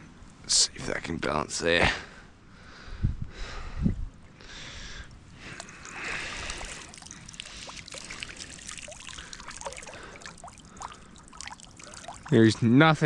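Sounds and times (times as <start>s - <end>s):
running water: 5.2s - 13.0s
water drips and plops: 5.3s - 13.0s.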